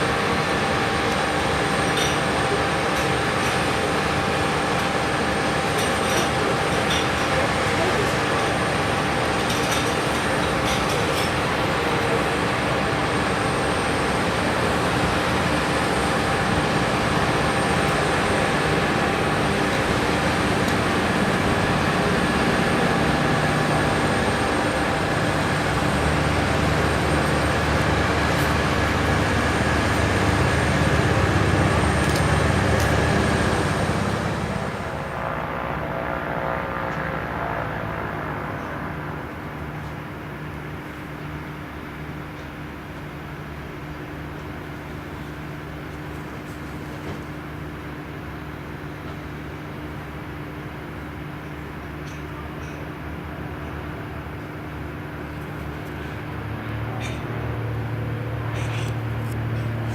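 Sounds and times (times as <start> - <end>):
light aircraft engine and propeller: 0.0 - 59.9
steady tones: 29.0 - 40.5.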